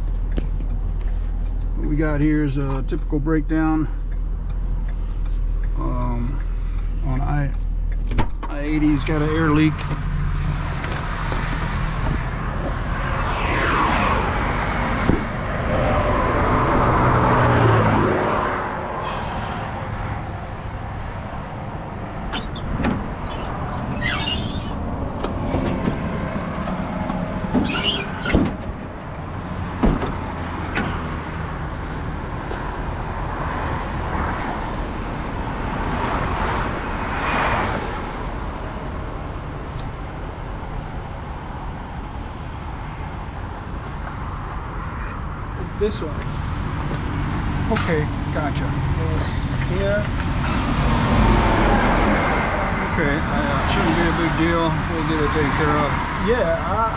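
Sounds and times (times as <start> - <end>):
highway traffic passing: 0.0 - 56.9.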